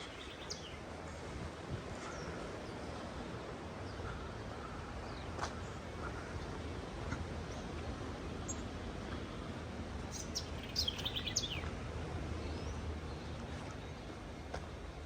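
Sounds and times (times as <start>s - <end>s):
bird chirping: 10.1s - 11.6s.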